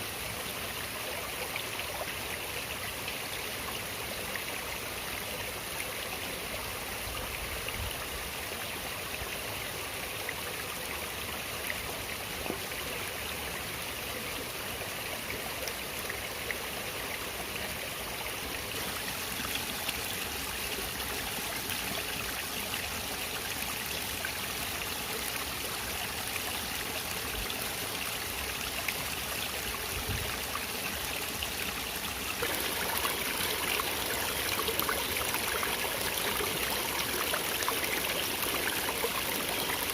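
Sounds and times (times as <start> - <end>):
stream water rushing: 8.1 - 39.9.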